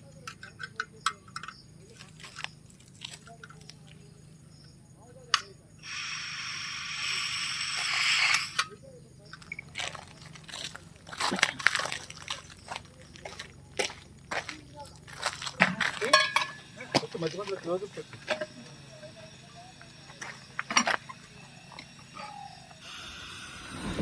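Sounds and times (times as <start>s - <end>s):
gas hissing from stove: 5.8s - 8.7s, 16.0s - 24.0s.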